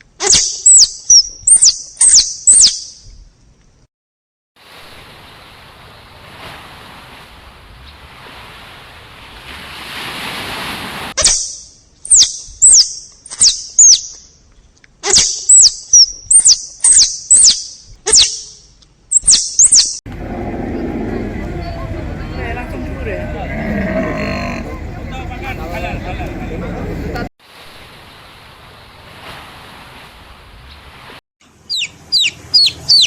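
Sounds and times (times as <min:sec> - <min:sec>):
small bird chirping: 0:15.2 - 0:20.0, 0:31.7 - 0:33.0.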